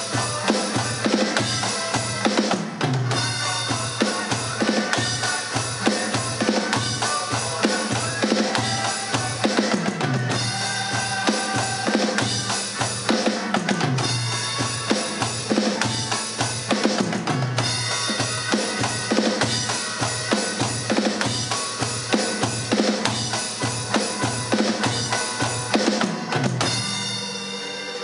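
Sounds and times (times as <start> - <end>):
drum kit groove: 0.0 - 28.0.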